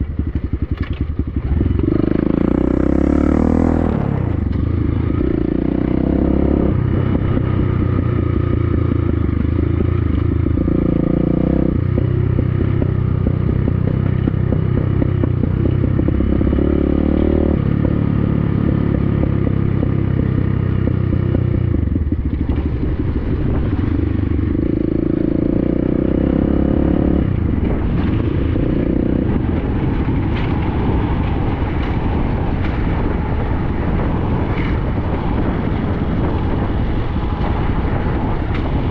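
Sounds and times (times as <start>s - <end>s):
dirt bike engine revving: 1.4s - 7.8s, 10.6s - 19.6s, 24.5s - 32.3s.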